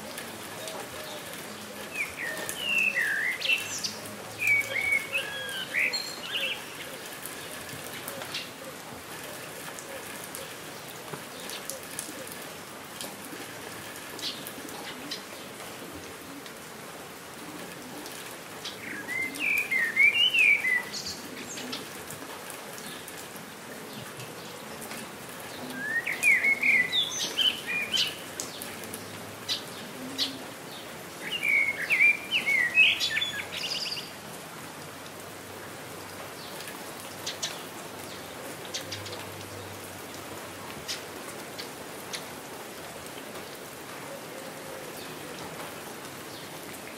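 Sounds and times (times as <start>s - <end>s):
steady rain: 0.0s - 46.9s
songbird chirping: 0.4s - 7.6s, 18.6s - 21.9s, 25.6s - 34.2s
water drips: 18.0s - 30.2s.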